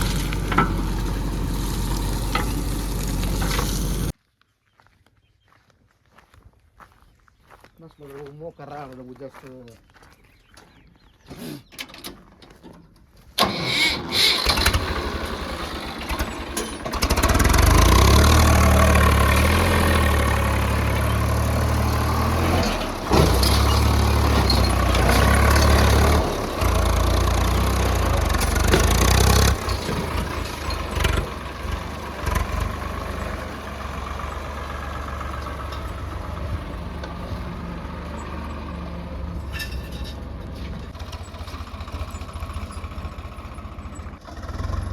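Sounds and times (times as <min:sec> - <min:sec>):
diesel engine starting and idling: 0:00.0 - 0:04.1, 0:13.4 - 0:44.9.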